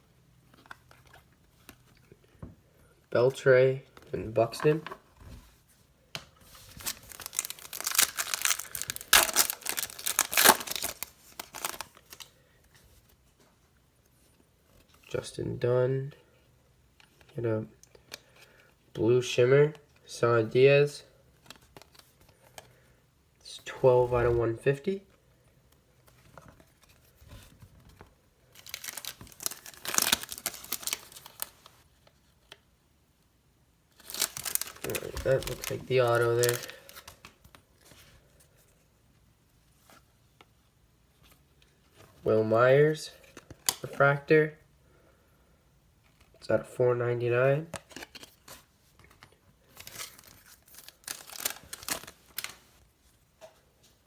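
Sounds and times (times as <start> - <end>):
cards rustling: 6.3 - 13.2, 26.0 - 32.6, 34.0 - 38.9, 43.1 - 44.0, 47.6 - 52.8
foil wrapper tearing and crinkling: 6.6 - 12.0, 28.6 - 31.7, 34.0 - 37.2, 49.8 - 52.6.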